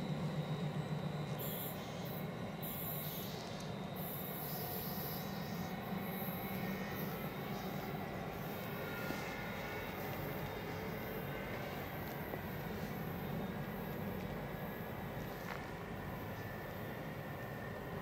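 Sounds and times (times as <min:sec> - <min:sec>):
high-pitched hiss: 0:01.4 - 0:16.8
train wheels rumbling on rail: 0:05.8 - 0:18.0.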